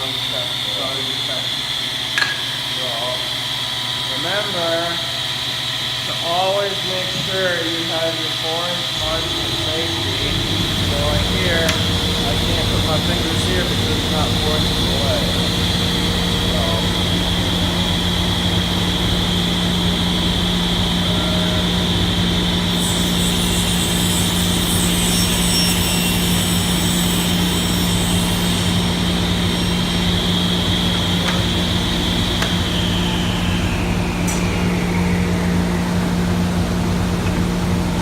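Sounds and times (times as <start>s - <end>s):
table saw hum and whine: 0.0s - 38.0s
saw blade cutting board: 8.9s - 15.6s.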